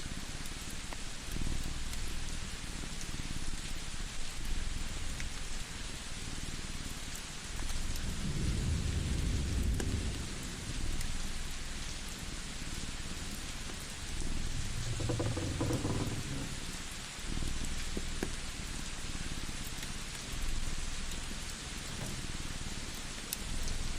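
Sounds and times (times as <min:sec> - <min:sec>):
wood fire crackling: 0:09.6 - 0:23.9
low rumble: 0:13.9 - 0:16.7.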